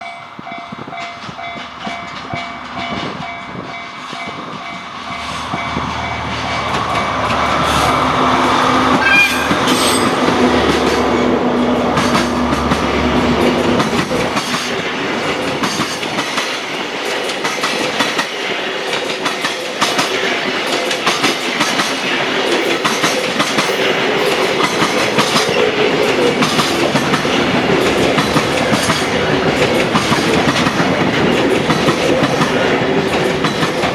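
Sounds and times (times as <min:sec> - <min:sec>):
wagons clacking over rail joints: 0:00.0 - 0:11.2, 0:11.9 - 0:33.9
locomotive engine rumbling: 0:00.1 - 0:16.2, 0:22.0 - 0:33.9
train horn: 0:05.2 - 0:10.6.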